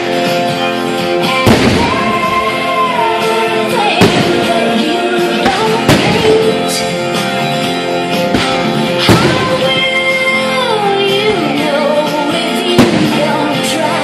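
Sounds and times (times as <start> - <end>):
show music with singing: 0.0 - 14.0
fireworks bangs: 1.3 - 3.2, 4.0 - 4.8, 5.4 - 6.8, 8.2 - 10.2, 12.8 - 13.6.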